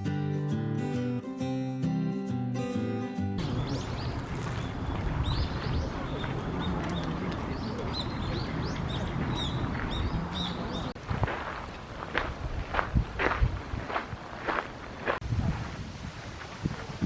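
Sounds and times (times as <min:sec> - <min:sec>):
small birds chirping: 0:03.4 - 0:11.0.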